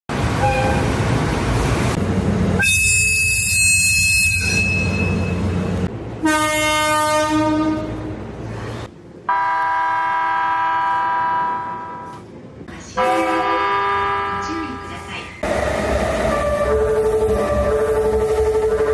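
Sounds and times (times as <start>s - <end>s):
train running: 0.1s - 18.9s
shrill train whistle: 2.6s - 5.3s
train horns: 6.2s - 8.2s, 9.3s - 12.2s, 13.0s - 15.1s.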